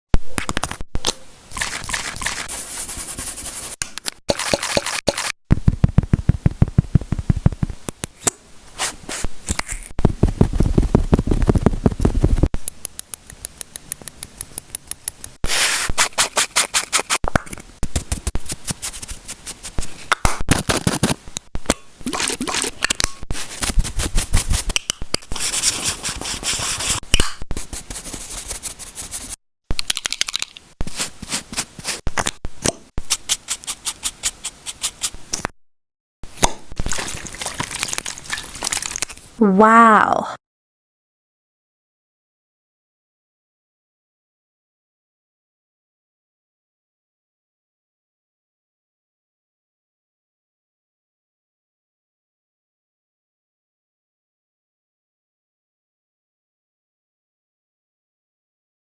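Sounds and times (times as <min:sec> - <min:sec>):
brush bristles scrubbing: 0:01.5 - 0:05.3, 0:15.4 - 0:17.2, 0:23.3 - 0:24.7, 0:25.3 - 0:27.0, 0:30.8 - 0:32.0, 0:33.1 - 0:35.2.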